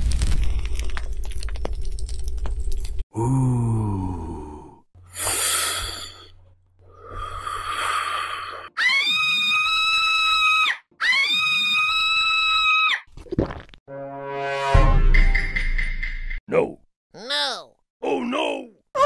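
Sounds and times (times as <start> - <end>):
wheezing exhalations: 5.1 - 8.7.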